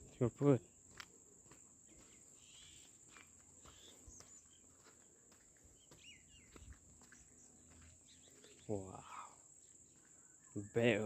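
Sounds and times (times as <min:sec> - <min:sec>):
crickets droning: 0:00.0 - 0:11.0
faint bird chirps: 0:00.0 - 0:11.0.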